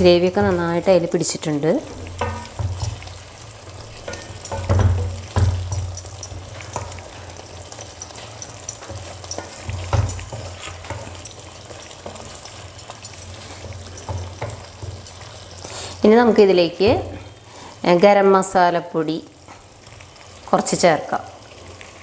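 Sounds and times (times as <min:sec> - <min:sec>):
curry sizzling in a pan: 0:00.0 - 0:22.0
utensil scraping and knocking pan: 0:01.8 - 0:17.3.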